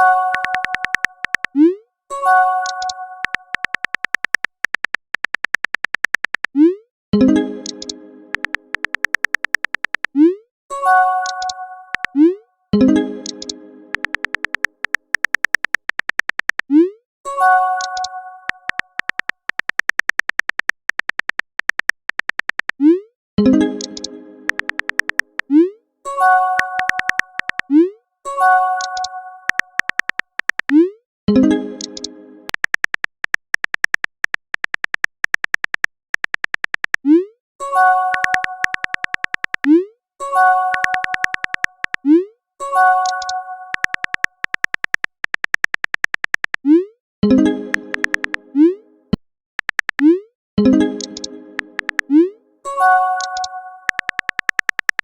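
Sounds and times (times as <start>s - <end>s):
virtual keyboard typing clicks: 0.0s - 1.7s, 2.5s - 6.6s, 7.3s - 10.2s, 11.2s - 12.2s, 12.8s - 16.8s, 17.8s - 22.8s, 23.5s - 25.6s, 26.4s - 27.7s, 28.8s - 30.8s, 31.8s - 37.1s, 37.8s - 39.8s, 40.4s - 42.2s, 42.8s - 48.4s, 49.6s - 52.3s, 53.0s - 55.0s.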